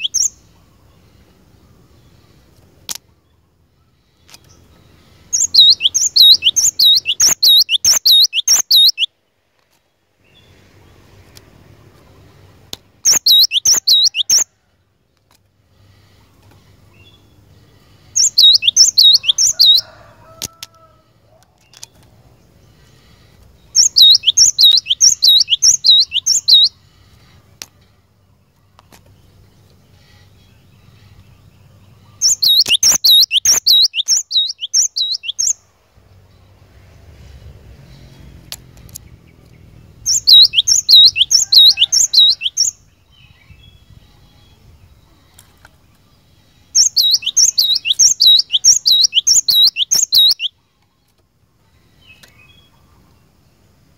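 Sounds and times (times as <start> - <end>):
bird singing high repeated notes: 0.0 - 0.6, 3.3 - 9.2, 13.0 - 14.5, 18.1 - 19.9, 23.6 - 26.8, 29.9 - 36.6, 39.0 - 44.6, 46.6 - 50.6.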